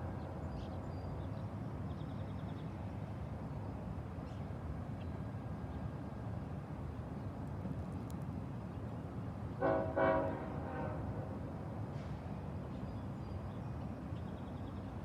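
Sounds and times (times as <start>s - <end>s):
locomotive air horn blasts: 9.6s - 11.4s.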